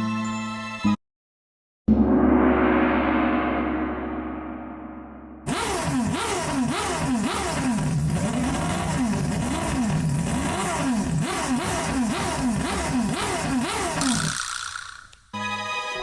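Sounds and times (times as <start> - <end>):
racing engine revving: 5.5 - 15.2.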